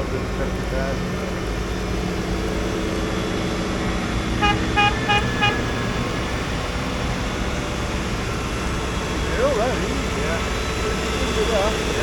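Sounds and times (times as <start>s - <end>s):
engine running: 0.0s - 12.0s
vehicle horn beeps: 4.4s - 6.0s.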